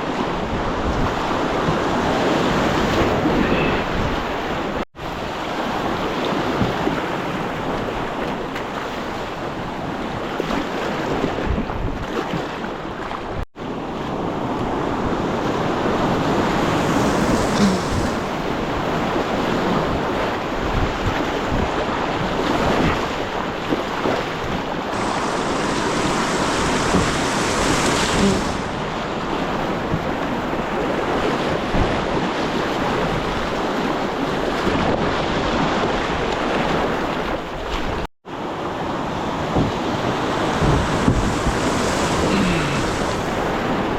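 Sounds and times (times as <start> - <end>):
river water rushing: 15.7 - 19.8, 24.9 - 29.9, 38.4 - 43.9.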